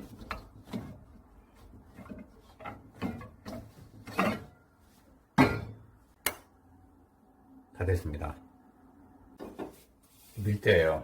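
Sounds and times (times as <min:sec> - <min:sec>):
hands kneading dough: 0:00.0 - 0:06.4.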